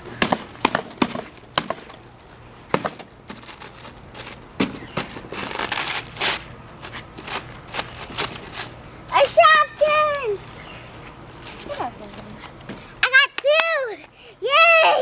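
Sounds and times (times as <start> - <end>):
sharp cracks and knocks: 0.2 - 6.4
crinkling rustle: 3.0 - 12.6.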